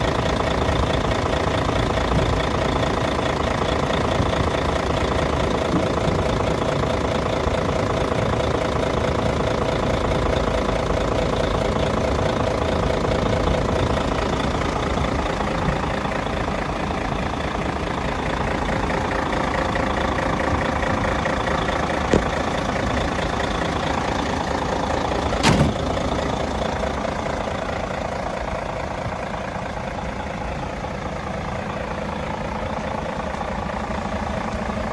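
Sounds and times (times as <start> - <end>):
truck diesel engine idling: 0.0 - 34.9.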